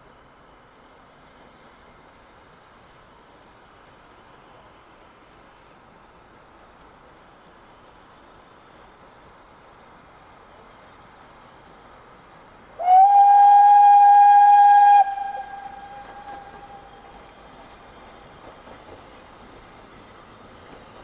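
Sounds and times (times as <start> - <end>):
steam locomotive whistle: 12.8 - 17.1.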